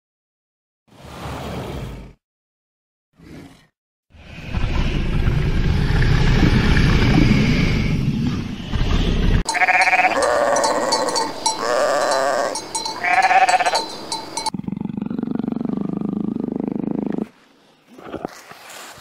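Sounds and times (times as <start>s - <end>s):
low rumbling noise: 4.2s - 9.4s
alpacas calling: 9.5s - 14.5s.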